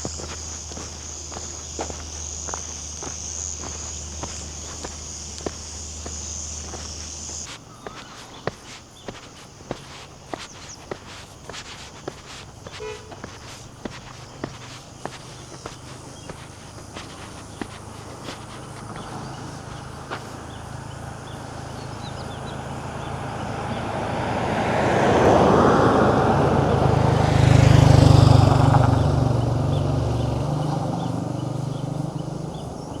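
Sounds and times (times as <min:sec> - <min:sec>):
tyre noise: 0:00.0 - 0:20.6
vehicle engine passing by: 0:20.8 - 0:32.9.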